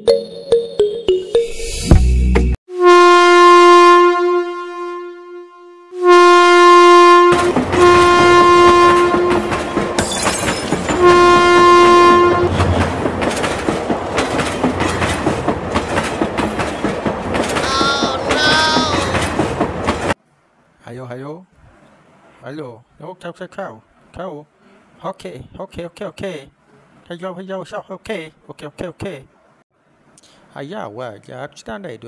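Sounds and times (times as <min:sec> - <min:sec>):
train horn blasts: 0:02.7 - 0:10.0, 0:10.9 - 0:12.7
train clattering on track: 0:07.3 - 0:20.2.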